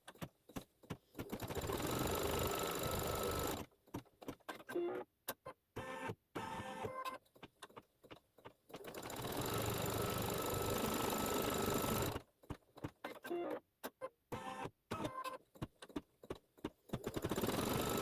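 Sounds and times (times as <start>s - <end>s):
embroidery machine stitching: 1.1s - 3.7s, 8.8s - 12.2s, 17.0s - 18.0s.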